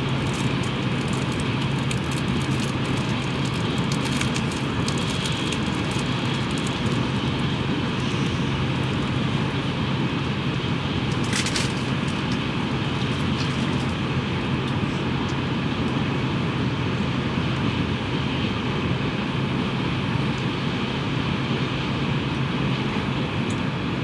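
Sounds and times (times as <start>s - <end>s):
train cabin rumble: 0.0s - 16.1s
rattle of clicks: 11.1s - 14.0s.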